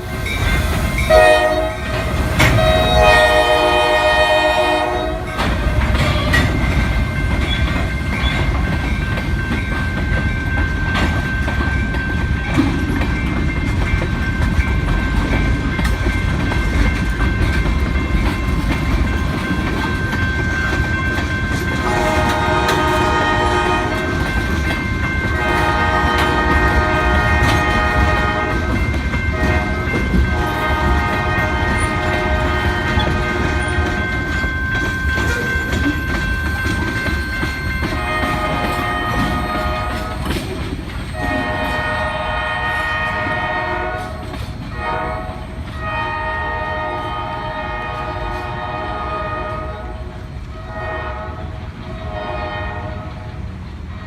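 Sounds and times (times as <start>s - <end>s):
freight train rumbling: 0.0s - 54.0s
wheel clatter on rails: 0.1s - 45.9s
locomotive horn blasts: 1.1s - 6.7s, 21.8s - 24.4s, 25.3s - 34.3s, 37.8s - 40.4s, 41.2s - 53.3s.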